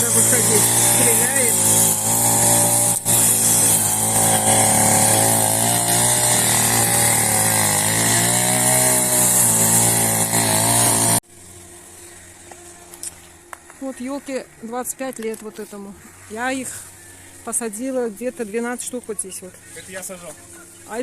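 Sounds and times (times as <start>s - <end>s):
grass trimmer cutting grass: 0.0s - 13.8s.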